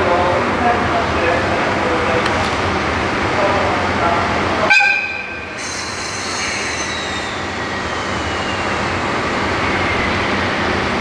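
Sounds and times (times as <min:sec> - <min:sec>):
low train noise: 0:00.0 - 0:11.0
high metallic squeal: 0:05.6 - 0:08.8.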